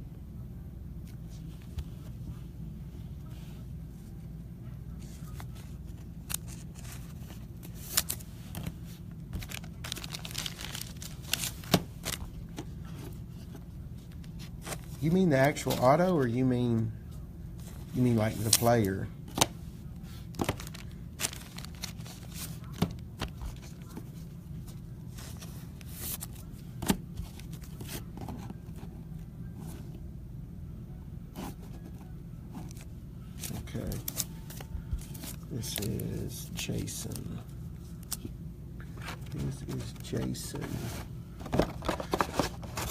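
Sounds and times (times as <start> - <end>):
steady low hum: 0.0 - 42.9
card wrappers tearing and crinkling: 5.1 - 12.5, 17.9 - 19.5, 20.2 - 24.0, 32.6 - 37.4, 41.4 - 42.9
trading cards sliding and rustling: 17.6 - 19.5.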